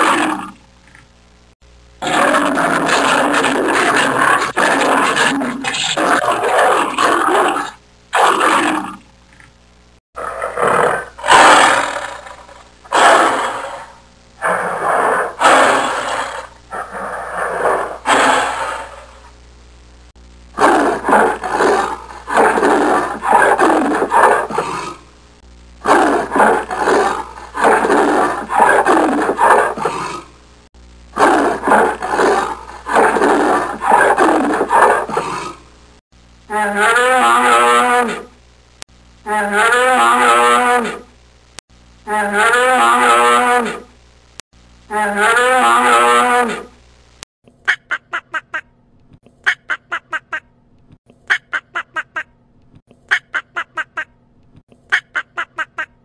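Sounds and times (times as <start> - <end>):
big cat roaring and grunting: 10.2 - 19.1, 20.6 - 25.0, 25.8 - 30.3, 31.2 - 35.6.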